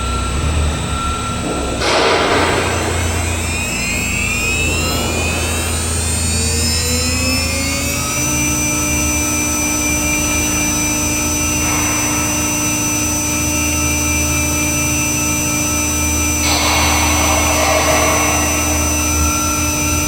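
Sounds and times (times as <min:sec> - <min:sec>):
router spindle whine: 0:00.9 - 0:20.0
rushing noise: 0:16.4 - 0:20.0.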